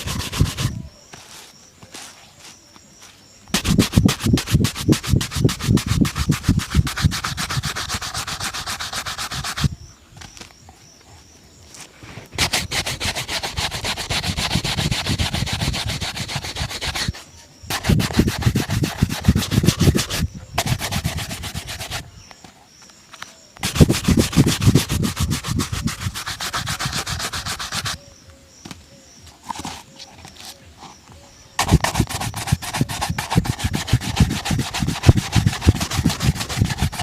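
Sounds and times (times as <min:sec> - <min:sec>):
polishing strokes on a shoe: 0:00.0 - 0:09.8, 0:12.4 - 0:22.1, 0:23.6 - 0:28.0, 0:31.6 - 0:37.0.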